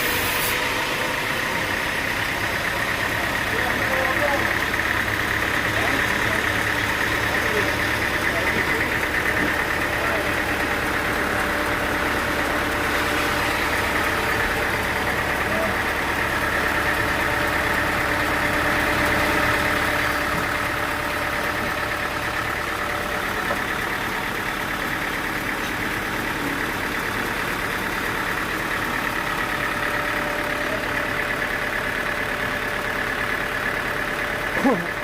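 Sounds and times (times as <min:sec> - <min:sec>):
sawmill machinery humming: 0:00.0 - 0:35.0.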